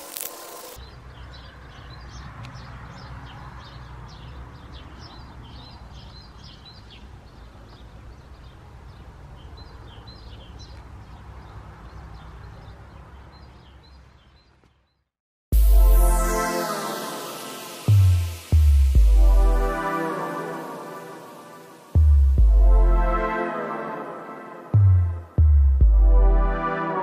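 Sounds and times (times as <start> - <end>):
small birds chirping: 0.0 - 15.1.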